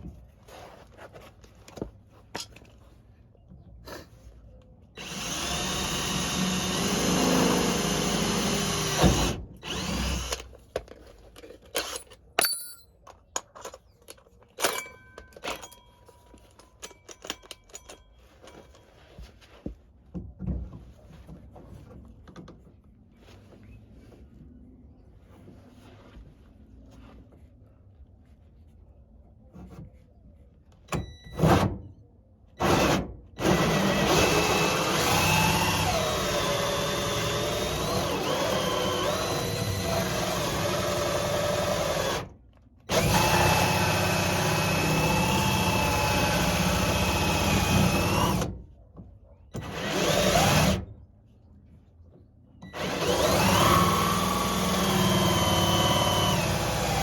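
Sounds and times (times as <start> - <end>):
power drill whining: 5.0 - 10.5, 32.6 - 42.3, 42.9 - 48.5, 49.6 - 50.8, 52.6 - 57.0.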